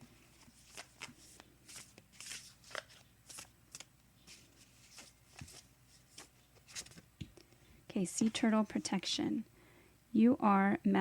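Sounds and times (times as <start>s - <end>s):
cards being shuffled: 0.2s - 7.4s.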